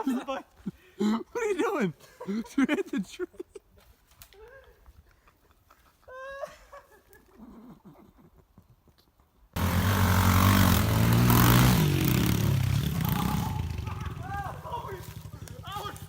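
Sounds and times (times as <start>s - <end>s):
small motorcycle engine running: 9.6s - 16.0s.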